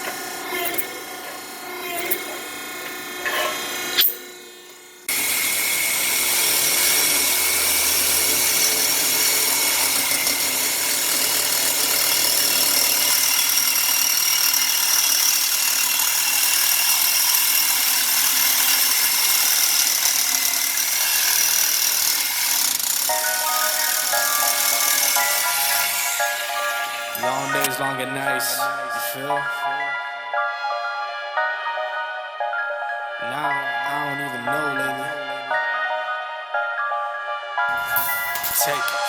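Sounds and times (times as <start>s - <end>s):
power tool running: 0.0s - 29.8s, 37.7s - 39.0s.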